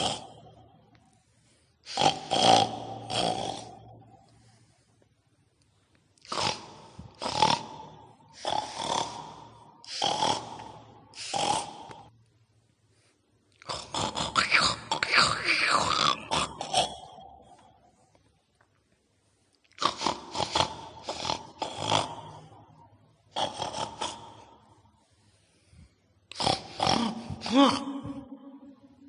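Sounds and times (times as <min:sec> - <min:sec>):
pig grunting: 0:00.0 - 0:00.4, 0:01.9 - 0:03.8, 0:06.3 - 0:07.8, 0:08.4 - 0:12.1, 0:13.6 - 0:17.6, 0:19.8 - 0:22.5, 0:23.3 - 0:24.6, 0:26.3 - 0:29.0.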